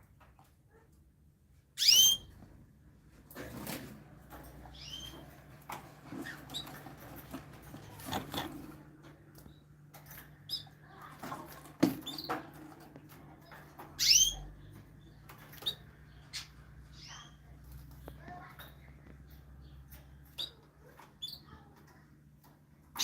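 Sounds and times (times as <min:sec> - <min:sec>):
small birds chirping: 0:01.8 - 0:02.3, 0:04.7 - 0:05.4, 0:06.2 - 0:11.1, 0:13.1 - 0:22.1.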